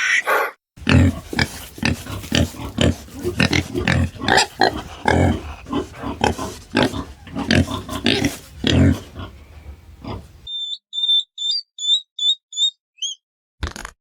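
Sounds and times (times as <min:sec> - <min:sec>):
animal harsh calls: 0:00.0 - 0:12.0
short high-pitched chirps: 0:10.5 - 0:13.2.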